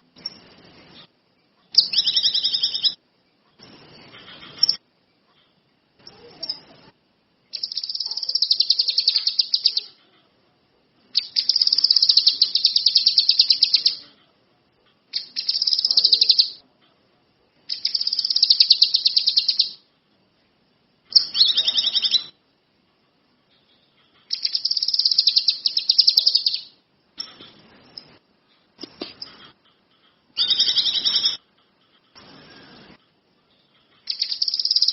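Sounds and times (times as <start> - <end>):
songbird high trilling: 1.8 - 3.0, 7.5 - 10.0, 11.2 - 14.0, 15.2 - 16.6, 17.7 - 19.8, 21.1 - 22.4, 24.3 - 26.7, 30.4 - 31.4, 34.1 - 34.9.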